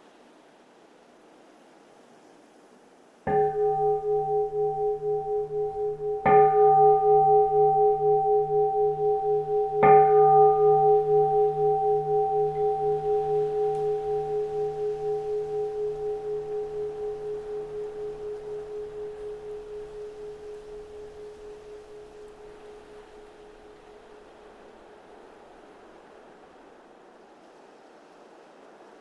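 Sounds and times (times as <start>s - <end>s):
bowl bell ringing: 3.3s - 24.8s.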